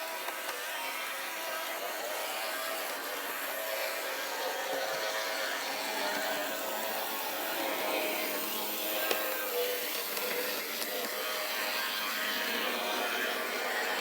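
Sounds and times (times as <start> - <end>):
small electric motor whirring: 0.0 - 14.0.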